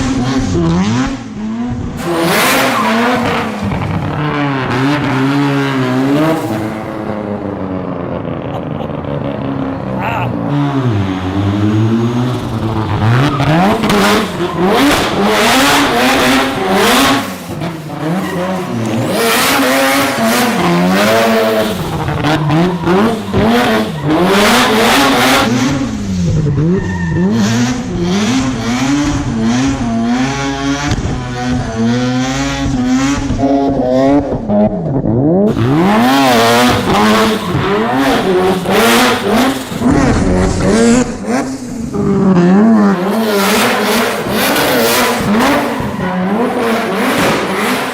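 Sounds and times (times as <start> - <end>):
car engine revving: 0.0 - 47.9
tire squeal: 2.0 - 7.6, 12.4 - 29.3, 35.5 - 47.9.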